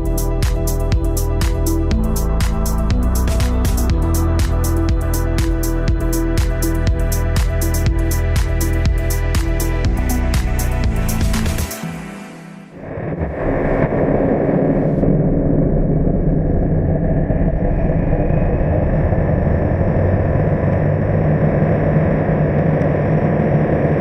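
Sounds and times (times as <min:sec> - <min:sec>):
rocket engine roar: 0:12.7 - 0:24.0.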